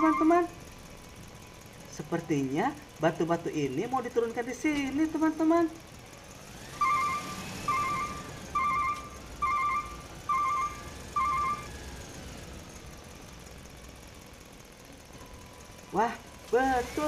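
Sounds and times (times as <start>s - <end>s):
electronic reversing alarm beeps: 0.0s - 0.6s, 6.7s - 11.8s.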